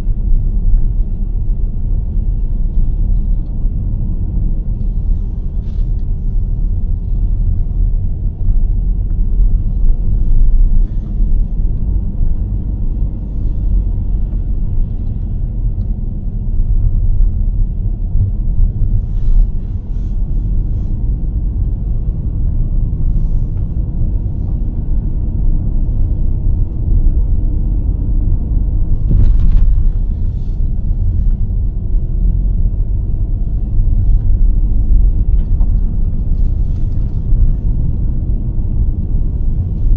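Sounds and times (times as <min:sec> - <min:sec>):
low rumble of tyres and engine: 0:00.0 - 0:39.9.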